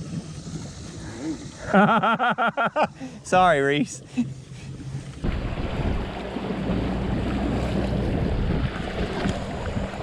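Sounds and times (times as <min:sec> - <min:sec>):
boat engine droning: 0:00.0 - 0:10.0
water rushing along hull: 0:00.0 - 0:10.0
wind buffeting microphone: 0:03.2 - 0:10.0.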